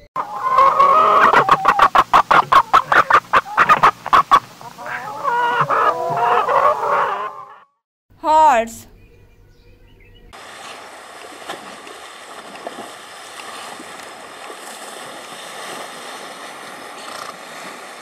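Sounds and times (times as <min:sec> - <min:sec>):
horses splashing through water: 0:10.4 - 0:18.0.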